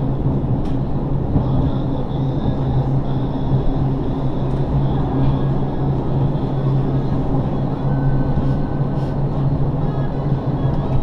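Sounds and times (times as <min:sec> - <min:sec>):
railcar low hum: 0:00.0 - 0:11.0
wheels rumbling on rails: 0:00.0 - 0:11.0.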